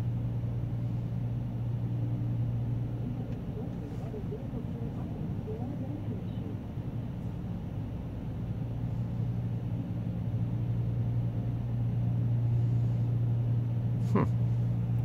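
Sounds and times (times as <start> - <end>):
minivan engine idling: 0.0 - 15.0.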